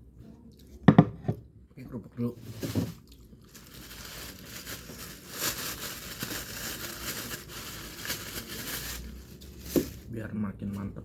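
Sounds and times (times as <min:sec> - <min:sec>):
plastic wrapping crinkling: 0:02.4 - 0:10.1
crackers crackling: 0:03.0 - 0:09.8.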